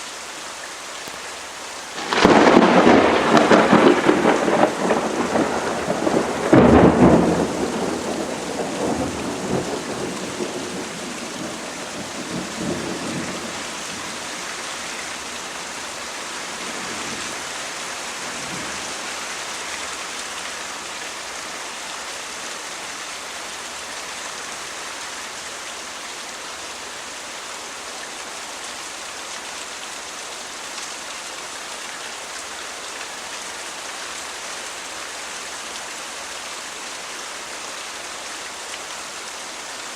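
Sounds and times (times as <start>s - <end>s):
steady rain falling: 0.0s - 39.9s
loud thunderclap rumbling: 2.0s - 14.1s.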